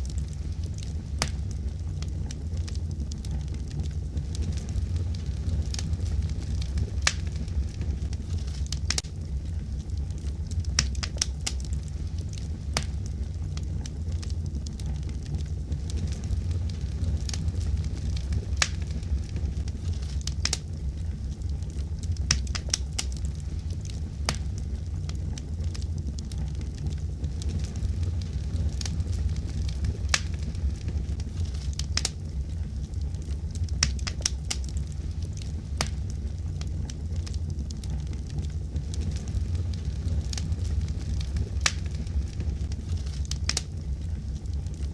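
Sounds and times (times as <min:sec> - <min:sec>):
fire crackling and popping: 0:00.0 - 0:44.9
wood fire burning: 0:00.0 - 0:44.9.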